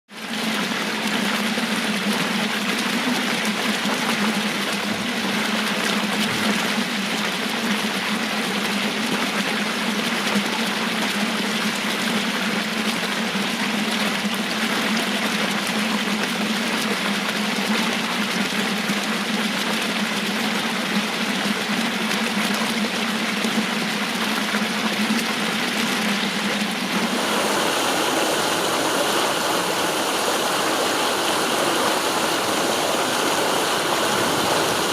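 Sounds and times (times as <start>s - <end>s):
water cascading down channels: 0.1s - 34.9s.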